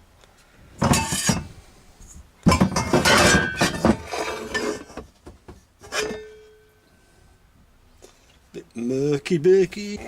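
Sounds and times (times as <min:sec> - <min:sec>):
pans clanking in a locker: 0:00.8 - 0:01.6, 0:02.5 - 0:05.1, 0:05.8 - 0:06.6.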